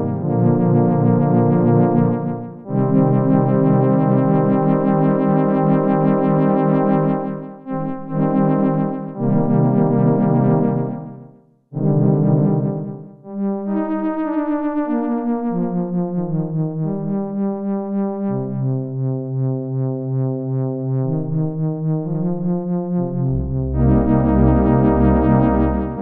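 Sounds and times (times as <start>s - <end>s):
deep synthesizer bass note: 0.0s - 4.4s, 23.0s - 26.0s
synthesizer chords: 0.0s - 17.1s, 18.3s - 26.0s.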